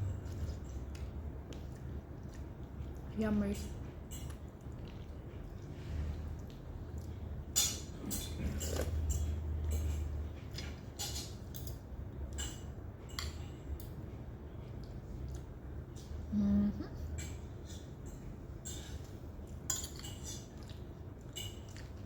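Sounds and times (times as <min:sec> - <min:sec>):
low steady hum: 0:00.0 - 0:22.0
cutlery clinking on plates: 0:07.5 - 0:13.6, 0:19.7 - 0:20.7, 0:21.3 - 0:22.0.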